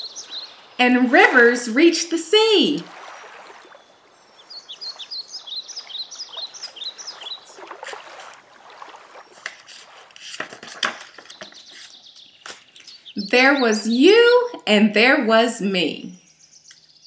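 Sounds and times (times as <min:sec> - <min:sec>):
bird chirping falling notes: 0:03.5 - 0:09.7.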